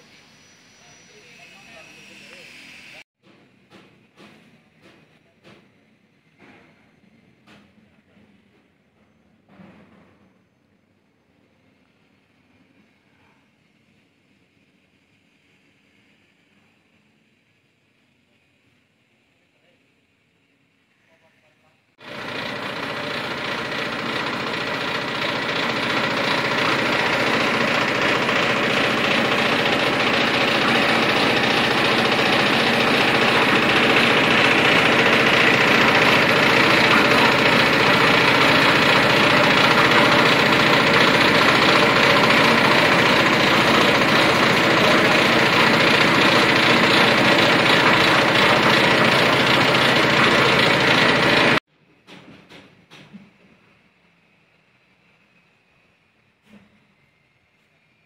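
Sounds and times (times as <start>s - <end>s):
concrete mixer diesel engine running: 22.0s - 51.6s.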